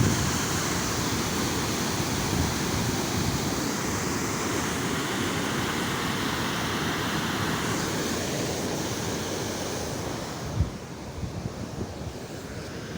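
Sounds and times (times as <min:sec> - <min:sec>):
wind buffeting microphone: 0:00.0 - 0:01.1
floodwater rushing: 0:00.0 - 0:10.6.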